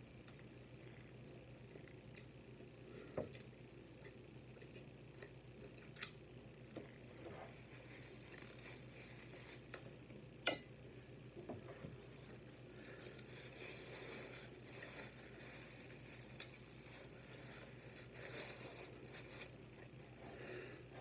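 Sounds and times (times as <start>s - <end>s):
person chewing: 3.3s - 6.2s.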